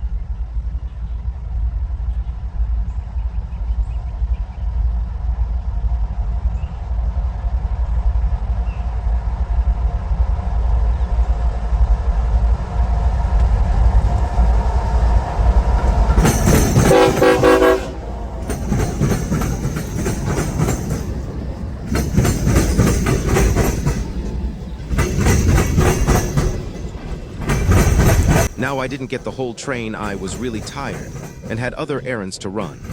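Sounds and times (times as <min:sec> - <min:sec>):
freight train rumbling past: 0:00.0 - 0:32.9
locomotive horn blasts: 0:14.4 - 0:19.1.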